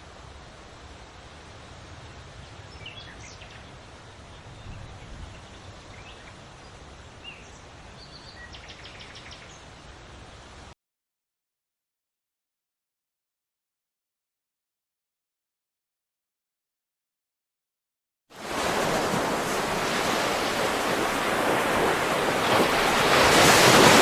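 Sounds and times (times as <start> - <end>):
wind in trees: 0.0 - 10.8, 18.3 - 24.0
songbirds chirping: 2.1 - 10.0.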